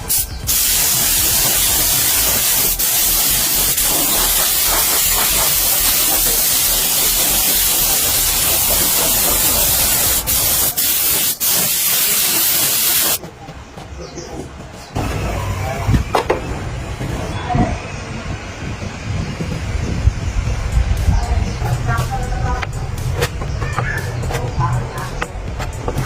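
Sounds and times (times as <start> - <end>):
loud spray hiss: 0.0 - 13.2.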